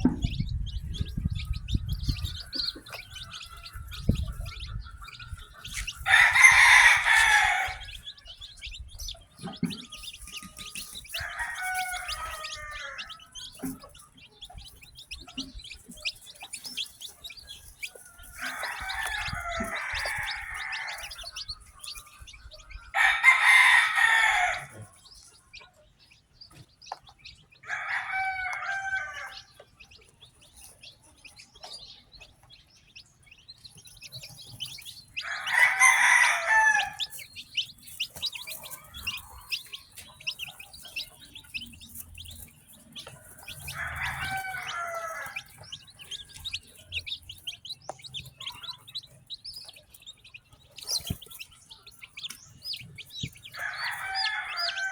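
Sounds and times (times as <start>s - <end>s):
chicks peeping: 0.0s - 54.9s
rooster crowing: 6.0s - 8.1s, 10.3s - 13.6s, 18.2s - 21.6s, 22.9s - 24.8s, 27.6s - 29.5s, 35.2s - 37.2s, 43.2s - 46.4s, 53.6s - 54.9s.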